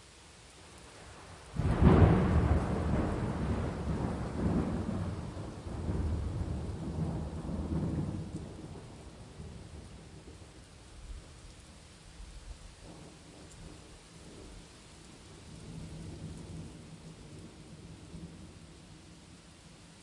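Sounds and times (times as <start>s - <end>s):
rain hissing: 0.0s - 20.0s
thunder clap rolling: 1.6s - 9.0s.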